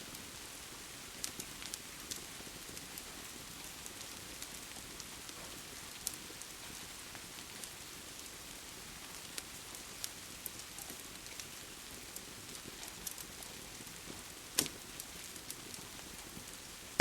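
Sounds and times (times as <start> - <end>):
steady rain hiss: 0.0 - 17.0
wood fire crackling: 0.0 - 17.0
fire pop: 14.0 - 17.0.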